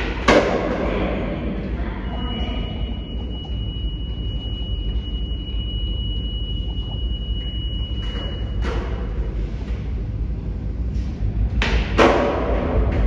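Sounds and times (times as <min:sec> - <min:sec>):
subway train rumble: 0:00.0 - 0:13.0
thin high whine: 0:01.7 - 0:09.2.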